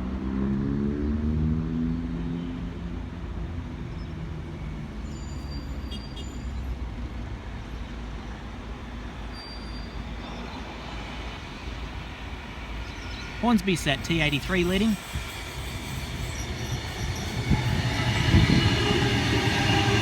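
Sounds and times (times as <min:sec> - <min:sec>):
train wheels rumbling: 0:08.7 - 0:20.0
faint high squeaks: 0:09.3 - 0:10.6.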